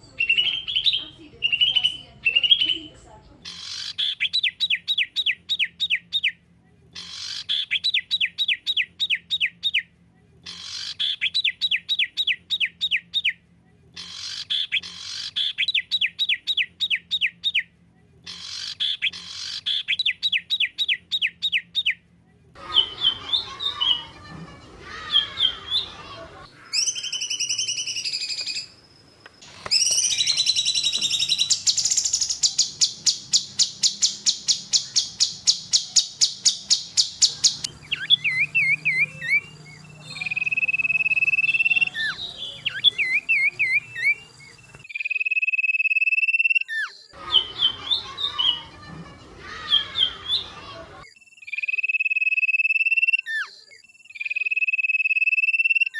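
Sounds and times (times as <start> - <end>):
songbird singing: 0.0 - 6.3, 22.6 - 44.9, 47.2 - 51.0.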